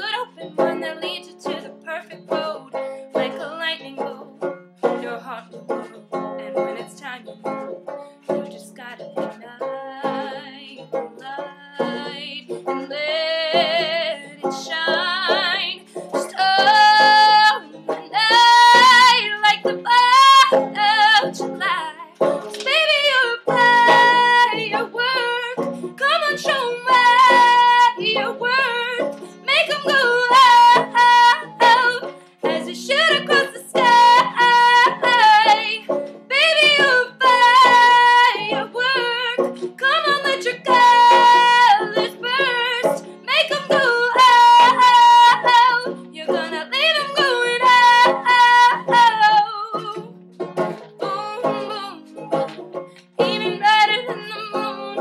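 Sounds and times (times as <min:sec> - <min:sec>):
woman singing: 0:00.0 - 0:07.5, 0:08.4 - 0:50.1, 0:50.9 - 0:52.6, 0:53.2 - 0:55.0
plucked banjo: 0:00.0 - 0:55.0.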